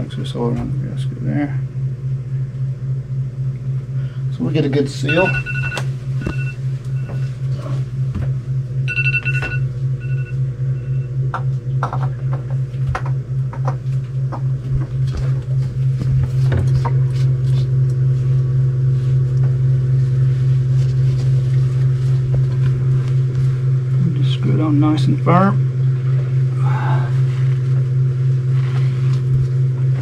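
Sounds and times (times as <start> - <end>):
engine-room machinery humming: 0.0 - 30.0
high electronic beep: 5.1 - 7.2, 8.9 - 11.1.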